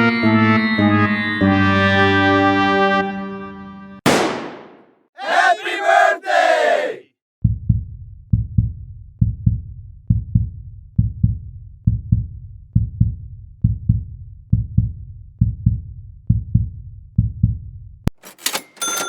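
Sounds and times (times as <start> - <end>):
heartbeat thumps: 7.5 - 17.7.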